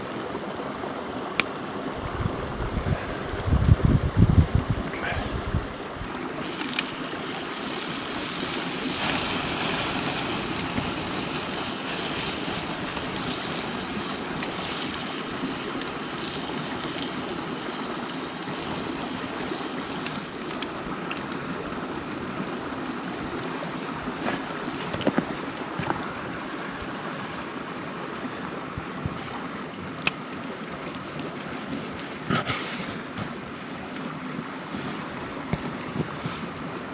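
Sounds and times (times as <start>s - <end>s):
mountain stream rushing: 0.0s - 36.9s.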